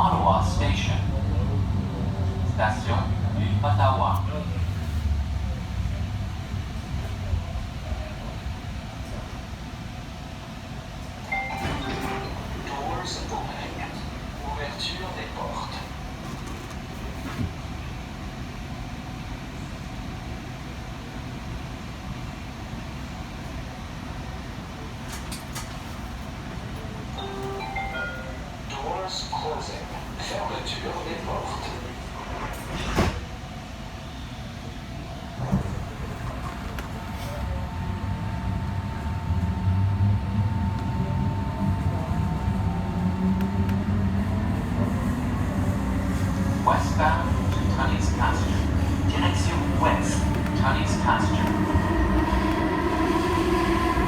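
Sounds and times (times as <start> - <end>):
light-rail car hum and rumble: 0.0 - 54.0
train doors knocking shut: 11.4 - 12.7, 32.3 - 33.4.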